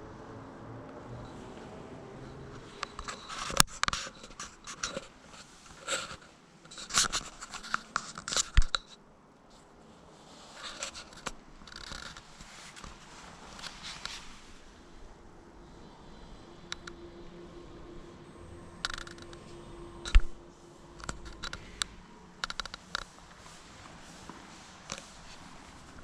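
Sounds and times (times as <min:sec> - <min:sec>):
scratching and rustling: 0:02.3 - 0:14.9, 0:18.7 - 0:26.0.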